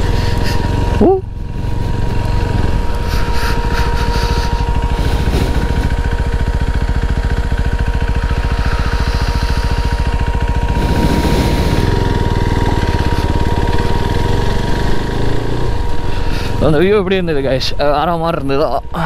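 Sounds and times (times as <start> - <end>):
motorcycle engine at low revs: 0.0 - 19.0.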